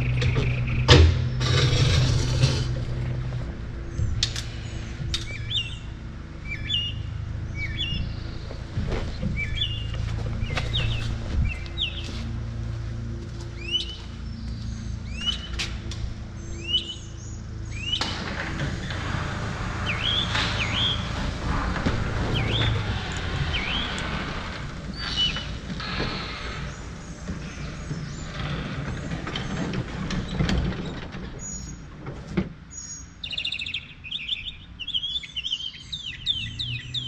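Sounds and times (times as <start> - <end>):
steady low hum: 0.0 - 30.6
small songbird chirping: 32.8 - 37.0.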